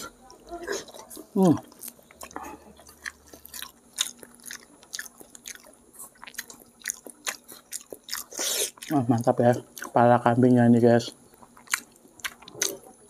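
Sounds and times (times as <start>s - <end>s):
person chewing food: 0.0s - 10.1s, 11.2s - 13.0s.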